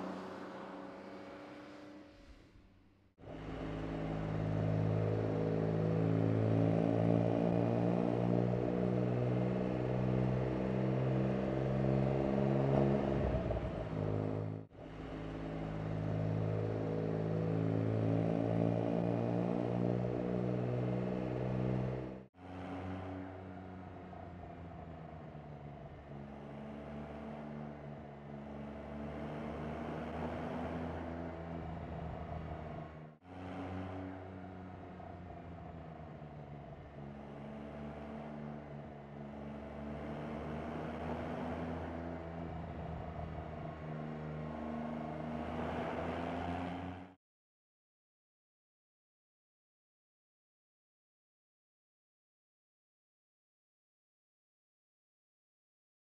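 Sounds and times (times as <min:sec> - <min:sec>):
car engine accelerating hard: 0:03.3 - 0:47.2.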